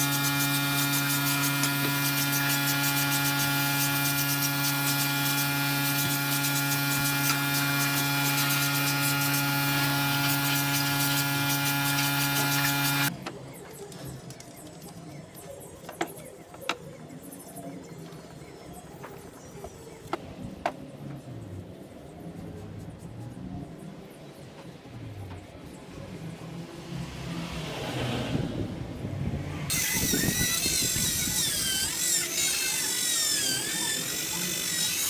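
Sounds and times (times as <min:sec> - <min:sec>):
machine hum with hiss: 0:00.0 - 0:13.1.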